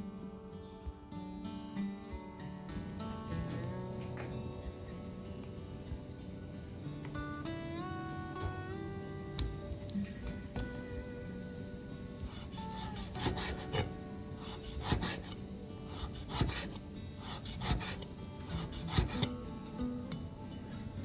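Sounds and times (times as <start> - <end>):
soft background music: 0.0 - 21.0
knife slicing on wooden board: 12.3 - 18.0, 18.6 - 19.3.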